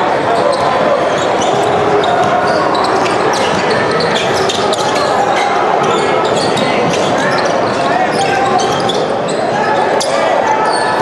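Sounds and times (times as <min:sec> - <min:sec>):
crowd chatter: 0:00.0 - 0:11.0
ball bouncing on court: 0:01.3 - 0:05.1.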